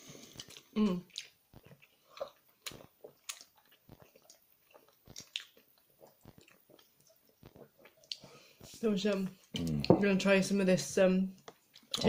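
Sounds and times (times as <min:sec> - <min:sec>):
person chewing food: 0:00.0 - 0:10.0, 0:11.4 - 0:12.0
mouth clicks: 0:09.5 - 0:10.0.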